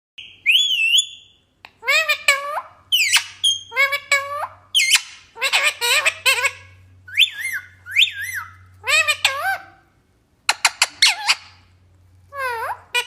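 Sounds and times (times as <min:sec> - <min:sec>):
parrot warbling whistle: 0:00.2 - 0:09.7
parrot chattering calls: 0:00.2 - 0:11.7, 0:12.3 - 0:13.0.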